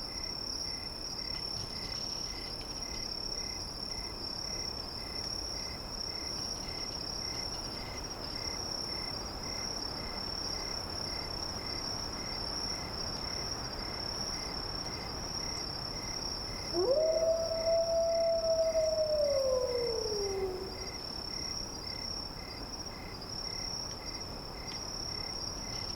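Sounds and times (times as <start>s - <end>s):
crickets trilling: 0.1s - 25.9s
wolf howling: 16.7s - 20.9s.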